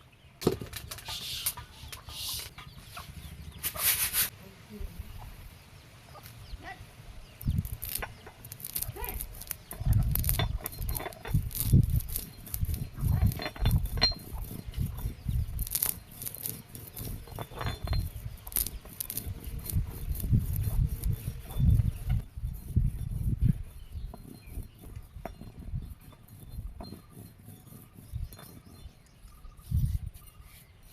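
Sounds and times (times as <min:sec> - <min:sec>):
chickens clucking: 0:01.0 - 0:04.0
wind buffeting microphone: 0:06.4 - 0:30.6.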